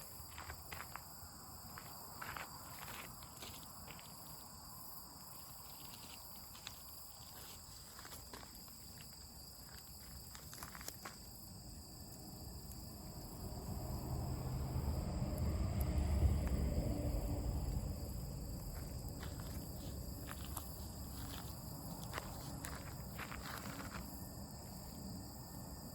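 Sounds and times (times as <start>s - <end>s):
crickets chirring: 0.0s - 25.9s
low rumble: 13.0s - 21.4s.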